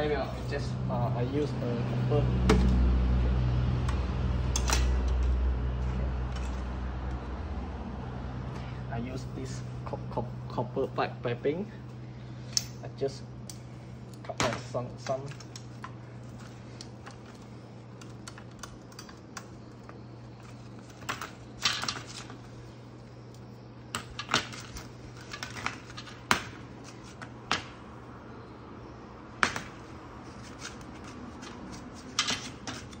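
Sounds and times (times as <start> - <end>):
low steady hum: 0.0 - 33.0
metal tools clicking and tapping: 4.5 - 5.4.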